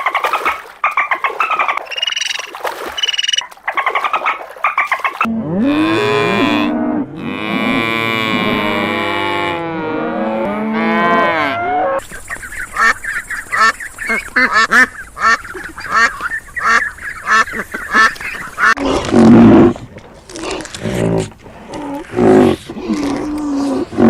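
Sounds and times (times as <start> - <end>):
cow mooing: 5.3 - 12.0
waterfowl calling: 12.0 - 18.8.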